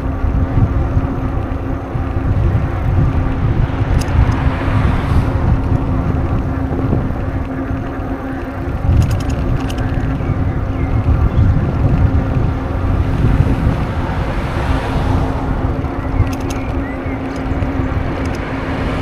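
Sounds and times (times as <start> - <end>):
wind buffeting microphone: 0.0 - 19.0
light clicks: 16.1 - 19.0.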